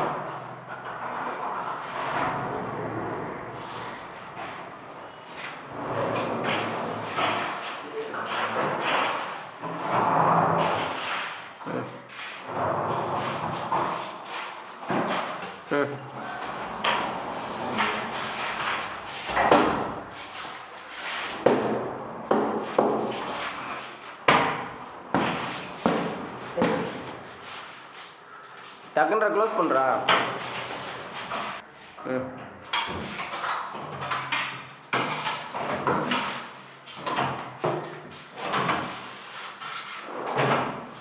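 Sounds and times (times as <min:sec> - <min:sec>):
drawers sliding: 0:12.4 - 0:27.4.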